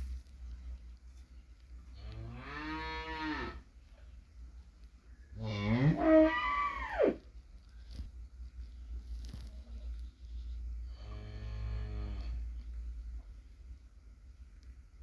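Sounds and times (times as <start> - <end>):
cow mooing: 2.2 - 3.6, 5.4 - 7.2.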